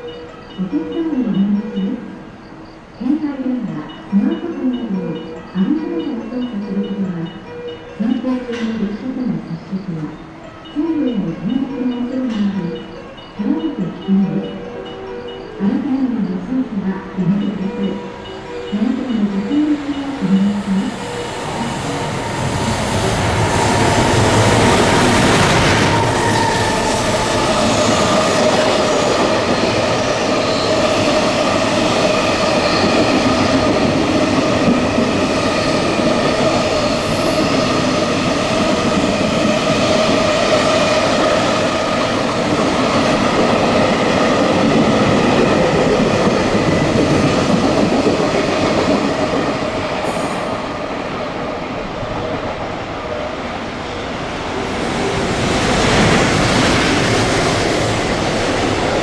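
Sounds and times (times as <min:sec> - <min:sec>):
steady ringing tones: 0:00.0 - 0:55.2
train wheels rumbling on rails: 0:16.8 - 0:59.0.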